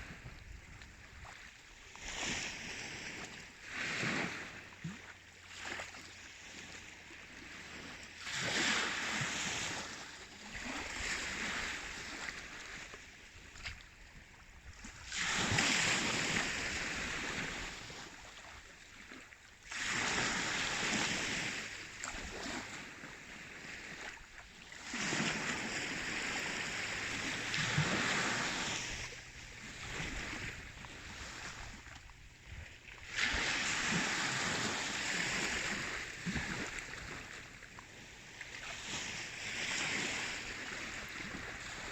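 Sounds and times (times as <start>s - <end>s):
sea waves washing in: 0.0s - 13.2s, 14.8s - 41.9s.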